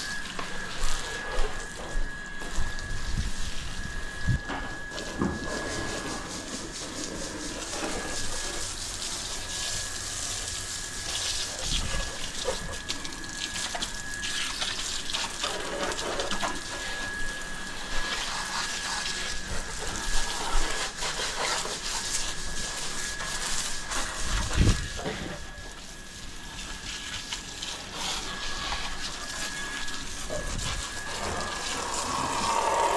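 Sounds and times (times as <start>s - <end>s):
high whine: 0.0s - 21.2s, 22.2s - 32.9s
water spraying and splashing: 0.0s - 32.9s.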